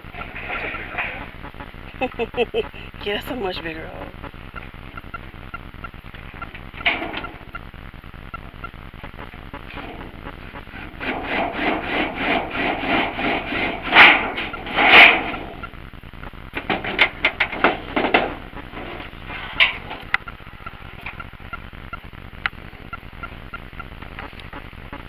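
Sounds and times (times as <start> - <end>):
hand tool rasping through wood: 10.8 - 14.0.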